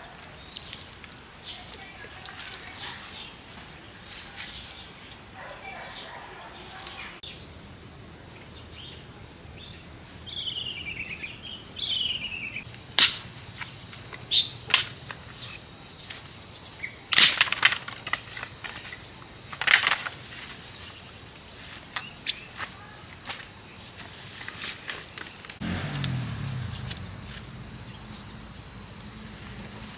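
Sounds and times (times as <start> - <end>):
insects trilling: 0.0 - 29.9
falling bird chirps: 25.6 - 29.9.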